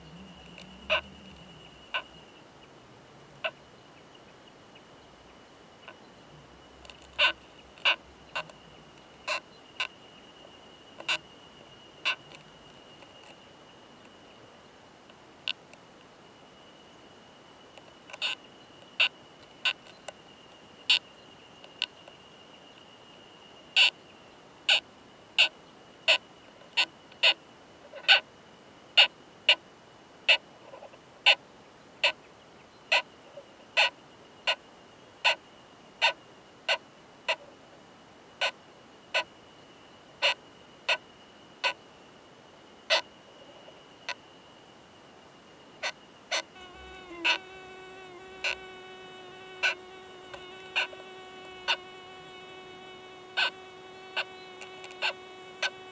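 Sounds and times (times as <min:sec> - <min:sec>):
beetle clicking: 0:53.3 - 0:55.8.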